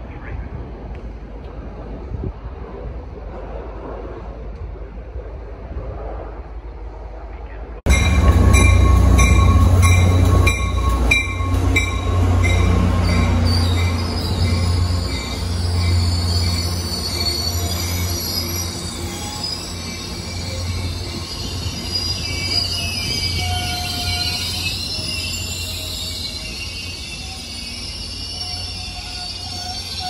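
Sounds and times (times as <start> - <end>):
locomotive bell ringing: 7.9 - 30.0
train wheel squeal: 7.9 - 30.0.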